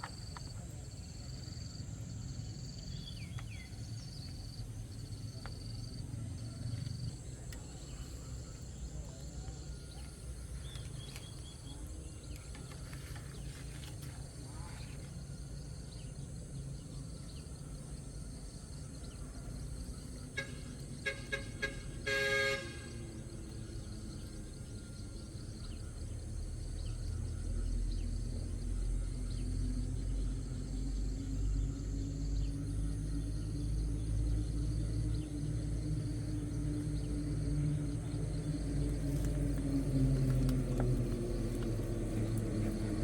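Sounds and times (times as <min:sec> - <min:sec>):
vehicle engine rumble: 0:00.0 - 0:43.0
vehicle horn beeping: 0:20.3 - 0:23.2.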